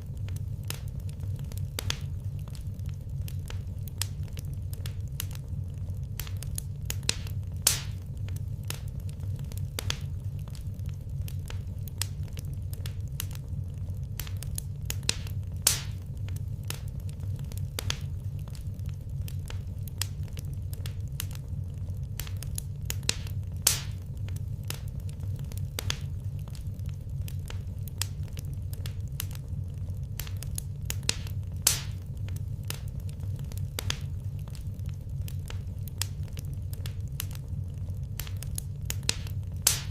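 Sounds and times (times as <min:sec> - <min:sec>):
wood fire crackling: 0:00.0 - 0:39.9
loud fire pop: 0:07.6 - 0:08.0, 0:31.2 - 0:32.0, 0:39.2 - 0:39.9.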